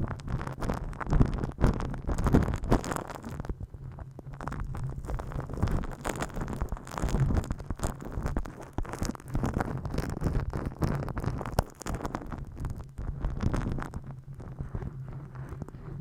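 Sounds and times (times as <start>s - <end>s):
hands rubbing over microphone: 4.7s - 16.0s.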